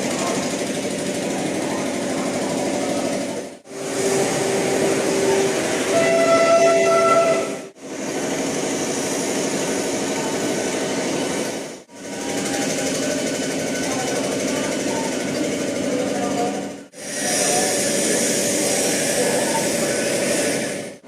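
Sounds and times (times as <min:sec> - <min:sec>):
train rattling: 0:00.0 - 0:20.7
train horn: 0:04.0 - 0:07.7.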